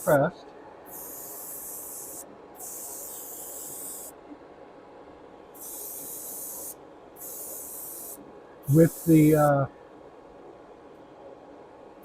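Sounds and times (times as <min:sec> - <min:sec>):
airbrush spraying hiss: 0:00.9 - 0:04.2, 0:05.6 - 0:09.6.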